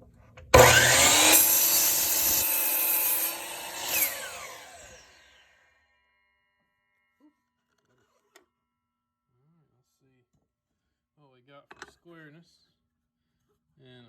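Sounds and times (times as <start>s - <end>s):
saw cutting through wood: 0.5s - 5.7s
miter saw motor whirring: 0.6s - 5.6s.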